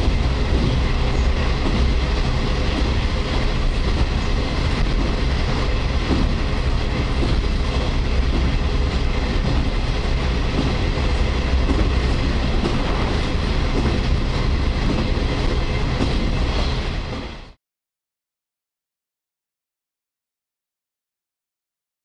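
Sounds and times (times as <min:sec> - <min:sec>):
wheels clacking over rail joints: 0:00.0 - 0:17.3
train car rumble: 0:00.0 - 0:17.6.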